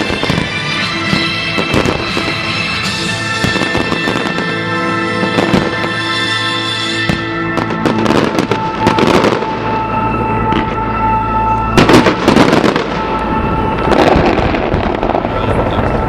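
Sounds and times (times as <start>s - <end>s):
heavy firework bangs: 0.0s - 6.3s, 11.8s - 13.1s, 13.8s - 16.0s
fireworks exploding and crackling: 0.0s - 10.9s, 11.6s - 16.0s.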